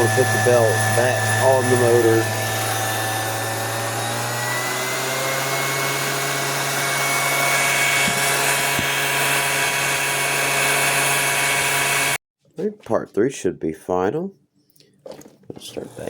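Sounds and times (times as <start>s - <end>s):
projector motor whining: 0.0s - 12.2s.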